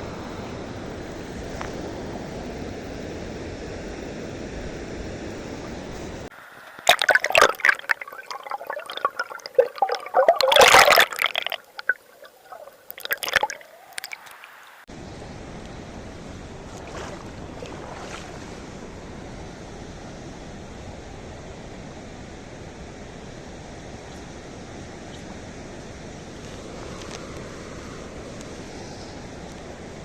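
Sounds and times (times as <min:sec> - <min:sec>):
water splashing and gurgling: 0:06.6 - 0:14.8, 0:16.6 - 0:18.8
river rushing: 0:06.8 - 0:19.4.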